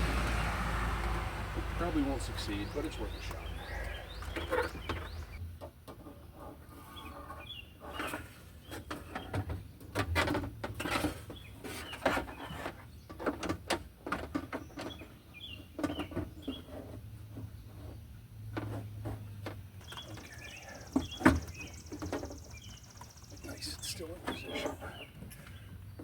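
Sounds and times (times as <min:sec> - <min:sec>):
faint bird chirps: 0:02.4 - 0:05.4, 0:19.8 - 0:25.8.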